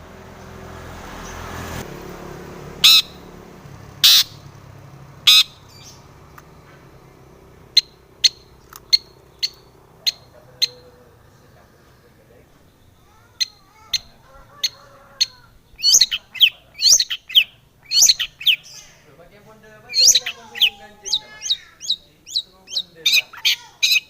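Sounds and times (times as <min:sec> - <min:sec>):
shrike harsh rasping calls: 0:02.7 - 0:04.5, 0:05.2 - 0:06.2, 0:07.2 - 0:19.2, 0:19.8 - 0:24.0.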